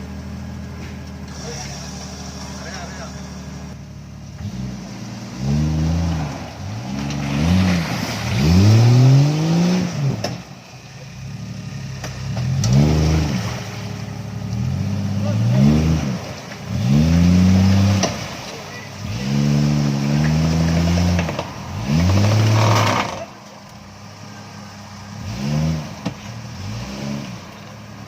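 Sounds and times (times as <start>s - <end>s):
vehicle engine revving: 0.0s - 28.0s.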